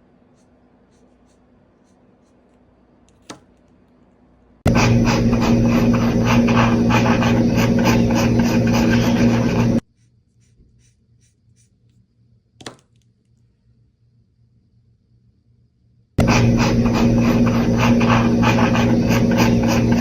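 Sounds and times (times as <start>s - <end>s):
markers scratching on paper: 0.3s - 2.6s, 4.7s - 11.9s, 16.2s - 20.0s
low hum: 4.6s - 9.8s, 16.2s - 20.0s.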